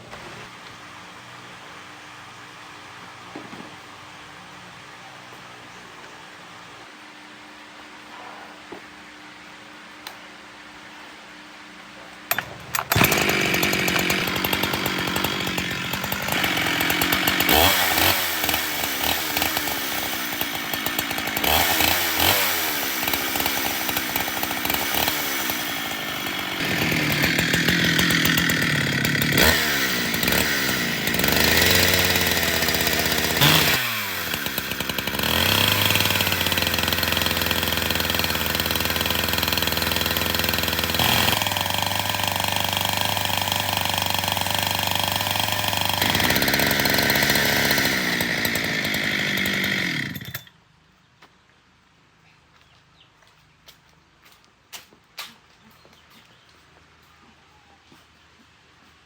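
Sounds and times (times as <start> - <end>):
chainsaw revving: 12.3 - 50.5.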